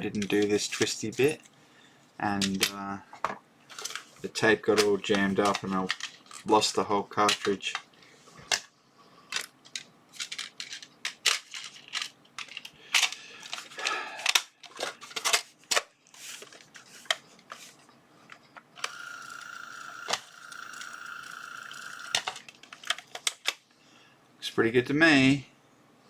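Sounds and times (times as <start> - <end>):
label maker motor whine: 18.8 - 22.3.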